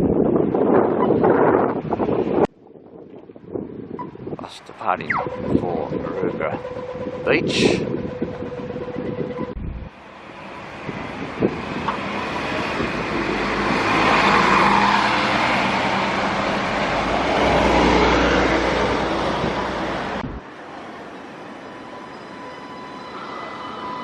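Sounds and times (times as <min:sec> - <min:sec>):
vehicle passing: 0:04.9 - 0:20.4
low hum: 0:05.1 - 0:10.1.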